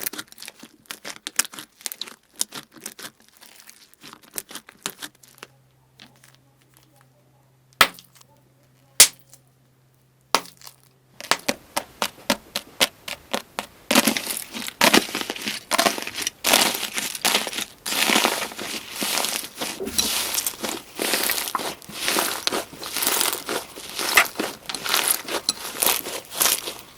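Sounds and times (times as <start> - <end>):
slime crunching and crackling: 0.0 - 7.0, 12.6 - 26.9.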